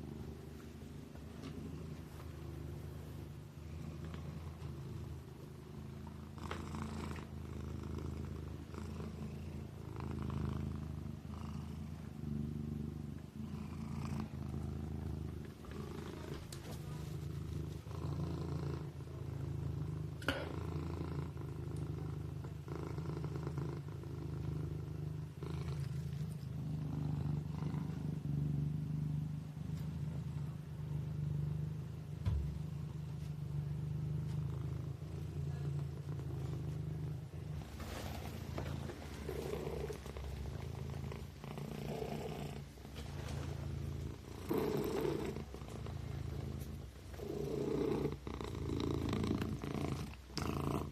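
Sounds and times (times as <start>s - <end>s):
kitten purring: 0.0s - 50.9s
short thump: 32.2s - 32.6s.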